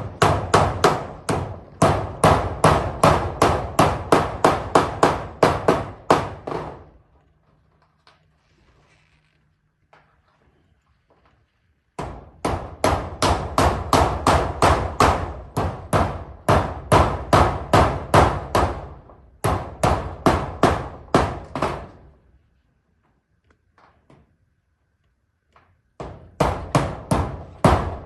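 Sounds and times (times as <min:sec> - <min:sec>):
hammer driving nails: 0:00.0 - 0:06.9, 0:12.0 - 0:22.1, 0:26.0 - 0:28.0.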